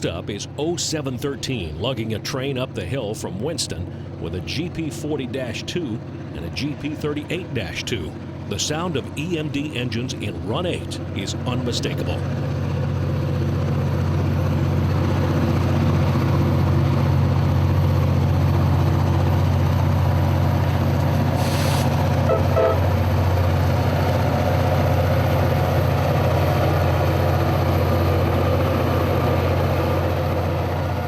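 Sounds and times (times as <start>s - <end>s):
diesel locomotive engines droning: 0.0s - 31.0s
brief air hiss: 21.4s - 22.0s.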